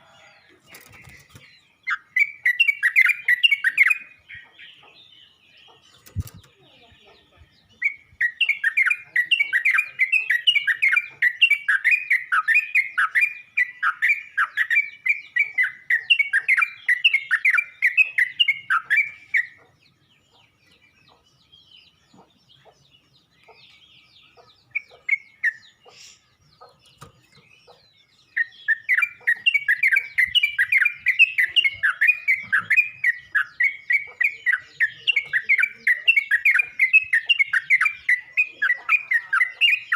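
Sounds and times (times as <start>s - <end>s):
bird chattering call: 22.1s - 39.9s.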